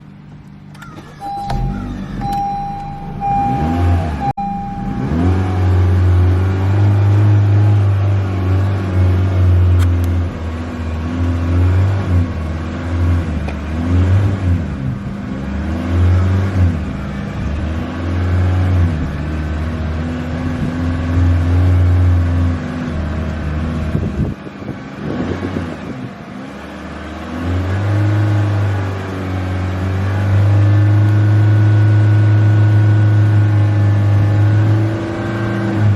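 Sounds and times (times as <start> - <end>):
car chime beeping: 0.7 - 5.9
car engine revving: 0.8 - 24.0.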